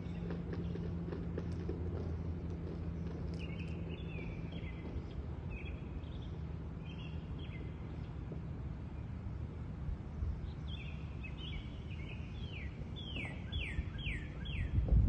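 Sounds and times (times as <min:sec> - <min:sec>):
low background hum: 0:00.0 - 0:15.0
bird chirping: 0:03.0 - 0:08.2, 0:10.4 - 0:14.8.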